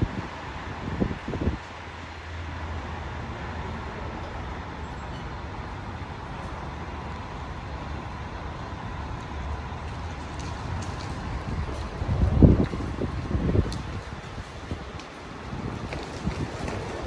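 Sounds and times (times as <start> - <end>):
wind buffeting microphone: 0.0 - 2.0, 8.2 - 17.0
street traffic rumble: 0.0 - 17.0.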